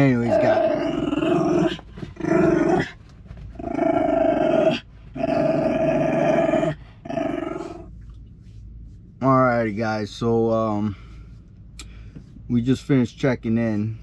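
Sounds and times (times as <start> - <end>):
dog growling: 0.2 - 3.0, 3.6 - 7.8.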